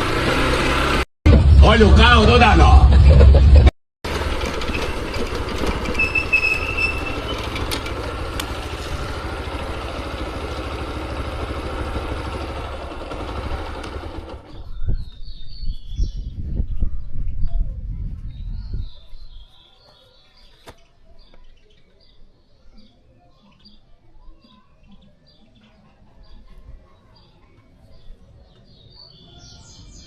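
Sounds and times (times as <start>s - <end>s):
motorcycle engine hum: 0.0s - 15.5s
wind and road noise: 0.0s - 19.3s.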